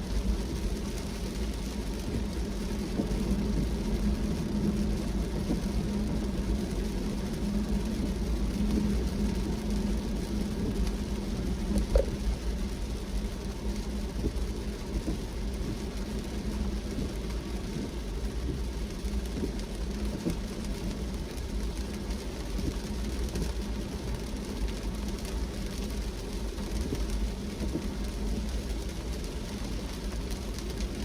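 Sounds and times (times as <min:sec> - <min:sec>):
constant hum: 0:00.0 - 0:31.0
rain ticking: 0:00.0 - 0:31.0.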